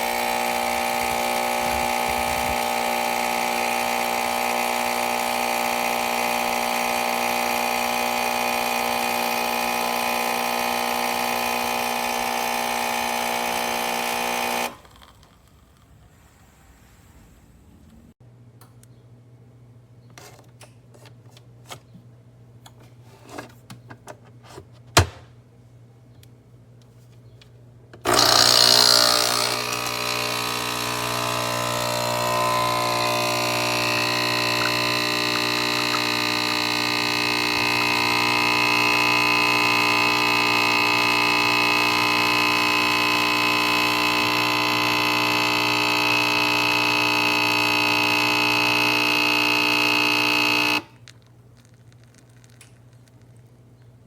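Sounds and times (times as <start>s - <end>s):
coffee machine pump buzzing: 0.0s - 15.4s, 28.0s - 53.5s.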